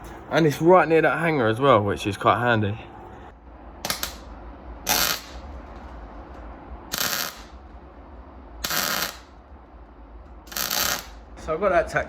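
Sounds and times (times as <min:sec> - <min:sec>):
welding arc crackling: 0:03.8 - 0:05.5, 0:06.9 - 0:07.6, 0:08.6 - 0:09.4, 0:10.4 - 0:11.3.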